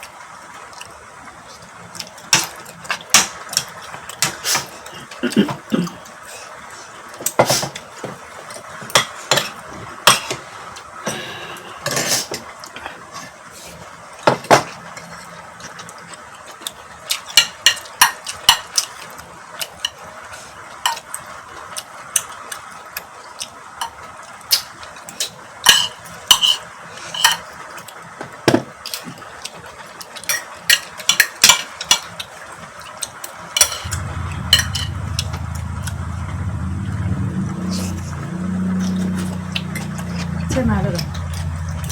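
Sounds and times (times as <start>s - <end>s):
low steady hum: 33.8s - 41.9s.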